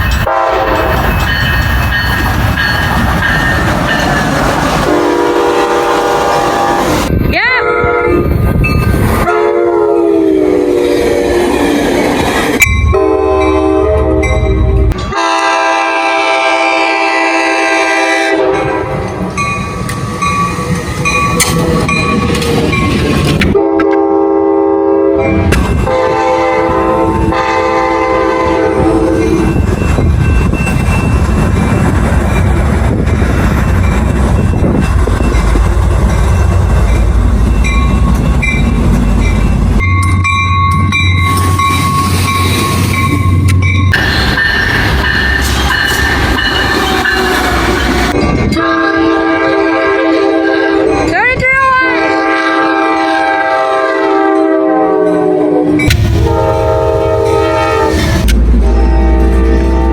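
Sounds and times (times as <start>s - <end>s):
train wheels clacking on rails: 0.0s - 7.0s, 19.0s - 24.0s, 29.2s - 48.6s
locomotive horn blasts: 0.3s - 1.0s, 4.9s - 8.3s, 9.2s - 11.6s, 12.9s - 19.1s, 23.5s - 29.4s, 46.3s - 51.1s, 51.8s - 59.9s.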